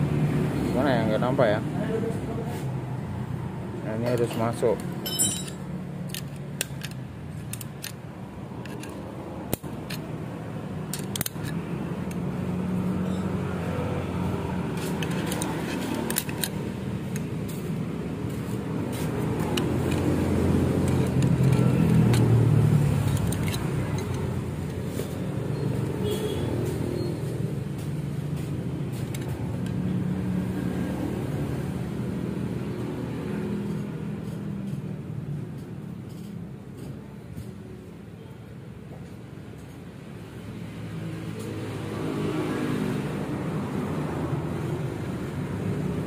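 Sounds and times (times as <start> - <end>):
engine hum: 1.7 - 37.5
small metal clicks and clinks: 4.0 - 8.0, 8.6 - 10.1, 10.9 - 12.2, 13.0 - 13.4, 14.8 - 17.3, 20.8 - 25.1.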